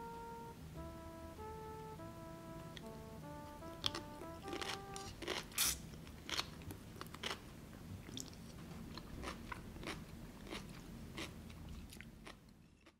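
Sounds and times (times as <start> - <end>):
crunching and chewing cucumber: 3.8 - 7.4, 8.0 - 12.9.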